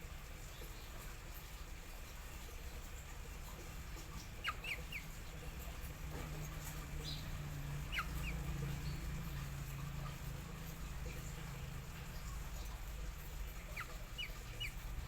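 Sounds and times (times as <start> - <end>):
low steady hum: 0.0 - 15.0
bird chirping: 4.0 - 15.0.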